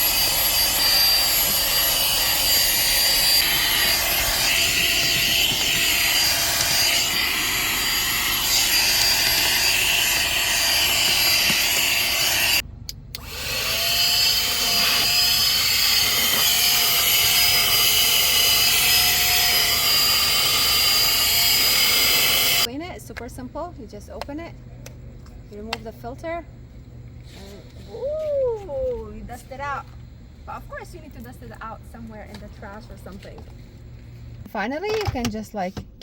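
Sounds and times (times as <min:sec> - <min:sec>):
handheld vacuum cleaner whine: 0:00.0 - 0:12.6, 0:13.2 - 0:22.7.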